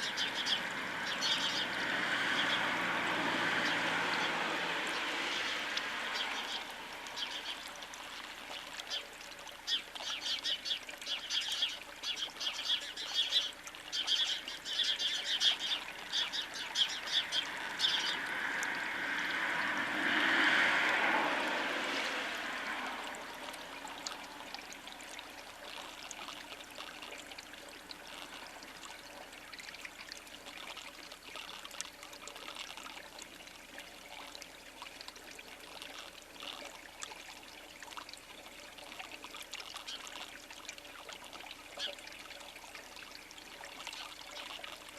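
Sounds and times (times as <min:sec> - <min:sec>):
small birds chirping: 0:00.0 - 0:02.7, 0:05.0 - 0:18.2.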